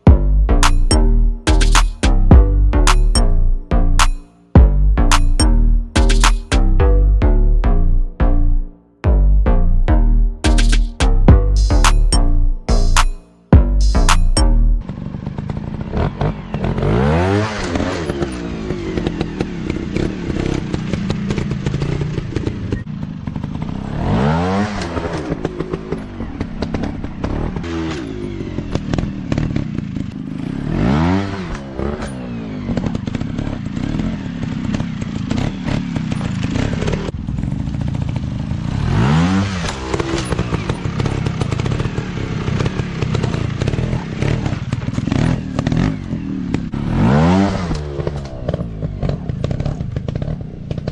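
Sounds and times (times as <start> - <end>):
dirt bike engines revving: 14.8 - 37.2, 37.8 - 50.9.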